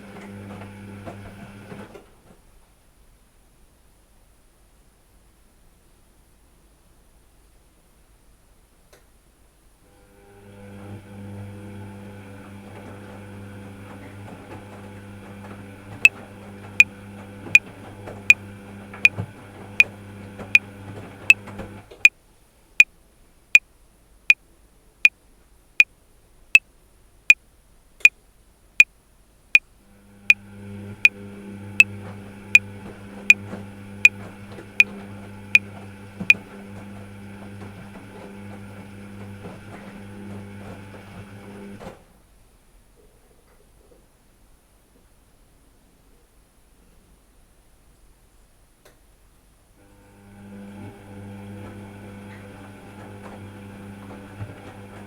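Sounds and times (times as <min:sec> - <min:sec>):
washing machine hum: 0:00.0 - 0:02.5, 0:09.9 - 0:22.1, 0:29.8 - 0:42.2, 0:49.8 - 0:55.0.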